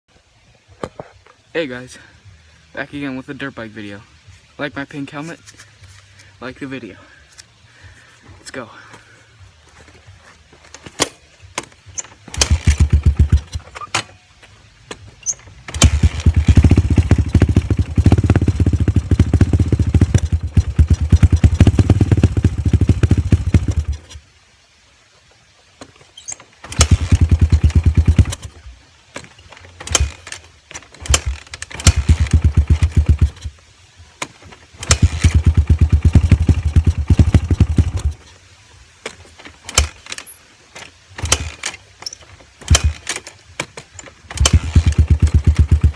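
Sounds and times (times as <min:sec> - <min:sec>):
dirt bike engine starting: 0:11.9 - 0:14.1, 0:15.2 - 0:24.2, 0:26.2 - 0:28.6, 0:29.3 - 0:33.5, 0:34.5 - 0:38.3, 0:39.6 - 0:40.4, 0:41.2 - 0:45.9.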